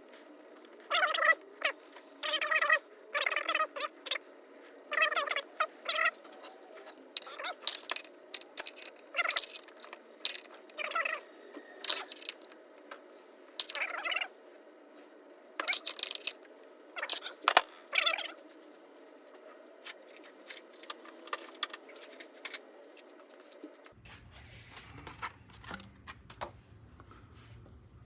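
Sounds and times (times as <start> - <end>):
metal tools clinking and scraping: 0.0 - 4.2, 4.9 - 12.8, 13.6 - 14.3, 15.6 - 18.3.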